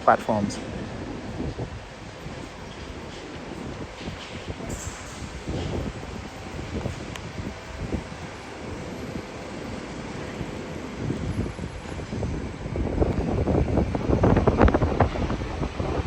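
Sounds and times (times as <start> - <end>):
wind buffeting microphone: 0.3 - 16.0.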